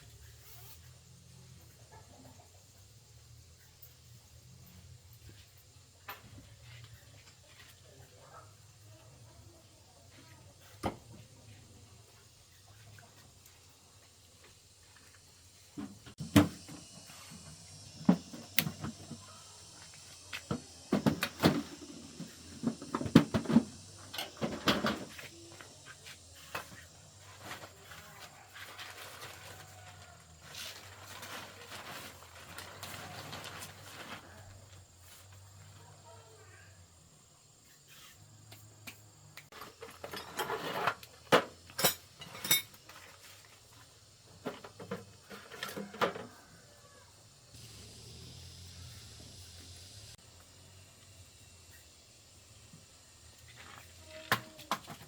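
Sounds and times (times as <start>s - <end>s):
metal objects clinking: 41.8s - 42.8s.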